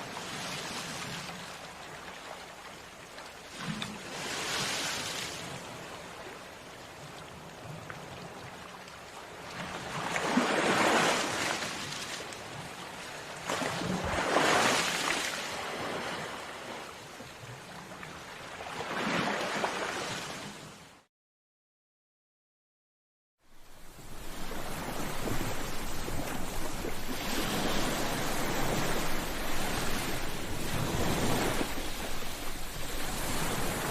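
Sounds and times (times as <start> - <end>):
waves breaking on shore: 0.0 - 21.1, 23.5 - 33.9
surf hiss: 23.5 - 33.9.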